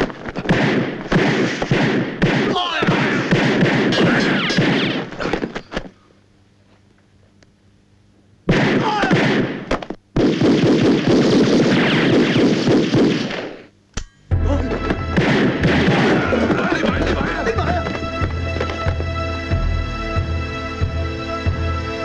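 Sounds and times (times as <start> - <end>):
rapid gunfire bursts: 0.4 - 5.3, 8.5 - 13.7, 15.2 - 16.8.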